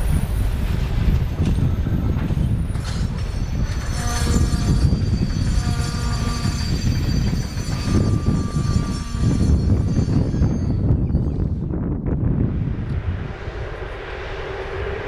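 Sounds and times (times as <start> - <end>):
train wheels rumbling on rails: 0.0 - 15.0
high-pitched wheel squeals: 1.3 - 11.7.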